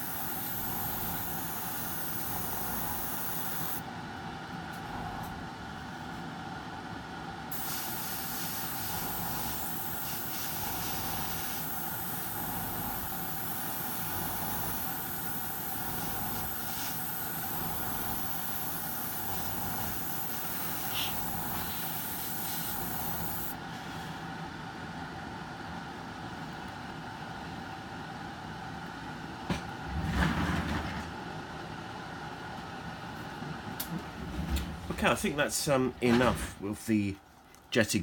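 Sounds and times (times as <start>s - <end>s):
airbrush spraying hiss: 0.0s - 3.8s, 7.5s - 23.6s
air compressor humming: 0.0s - 3.9s, 7.5s - 23.8s.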